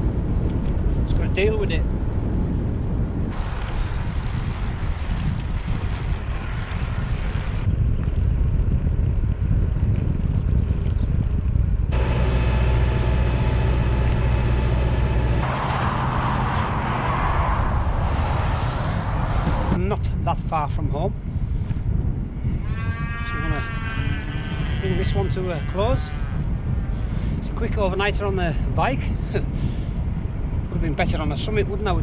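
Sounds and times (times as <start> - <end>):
road noise: 0.0 - 8.4, 11.7 - 21.8
wind rumbling over microphone: 0.0 - 32.0
steady multi-tone hum: 11.9 - 17.0.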